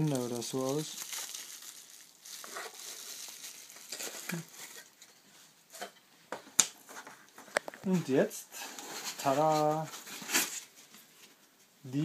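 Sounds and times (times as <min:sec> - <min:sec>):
packaging rustling and crinkling: 0:00.0 - 0:05.2.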